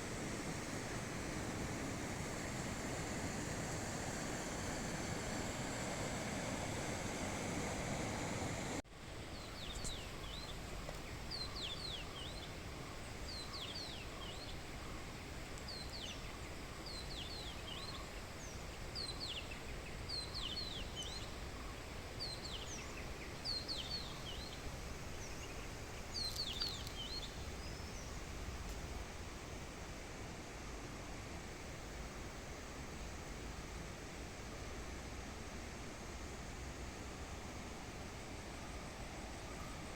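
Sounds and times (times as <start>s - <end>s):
outdoor ambience hiss: 0.0s - 39.9s
songbird singing: 3.7s - 29.0s, 38.6s - 39.9s.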